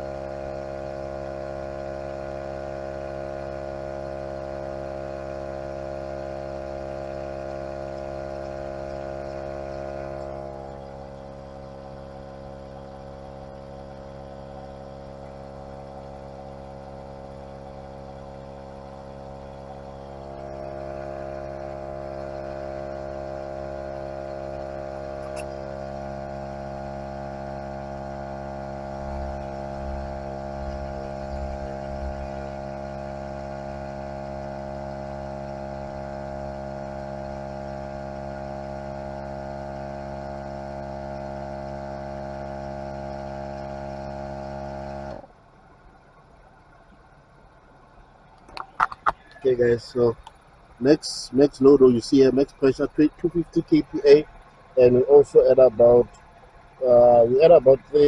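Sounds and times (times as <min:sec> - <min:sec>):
tyre inflator running: 0:00.0 - 0:45.4, 0:48.4 - 0:58.0.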